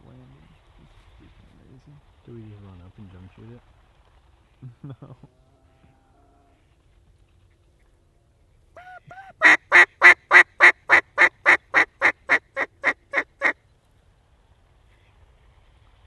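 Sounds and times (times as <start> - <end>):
duck call quacking: 8.8 - 13.6.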